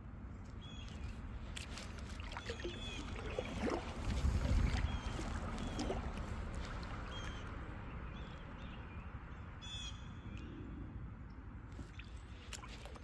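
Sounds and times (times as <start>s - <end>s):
bird calling: 2.2s - 3.8s, 4.4s - 6.2s.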